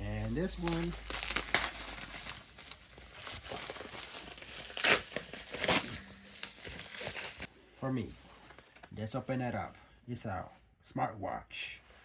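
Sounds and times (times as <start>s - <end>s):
plastic packaging crinkling: 0.0s - 7.5s
plastic ripping: 0.2s - 7.5s.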